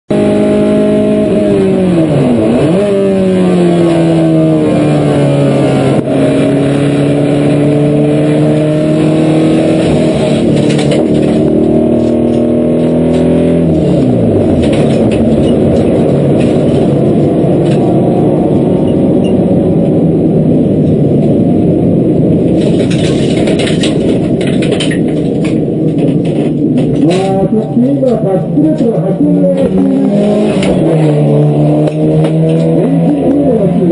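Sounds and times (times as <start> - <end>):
car engine revving hard: 0.1 - 20.1, 26.9 - 33.9.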